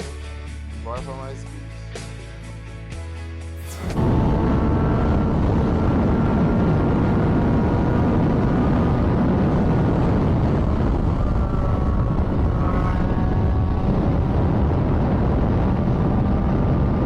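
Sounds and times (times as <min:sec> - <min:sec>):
road noise: 0:03.6 - 0:17.0
motorcycle engine: 0:03.7 - 0:17.0.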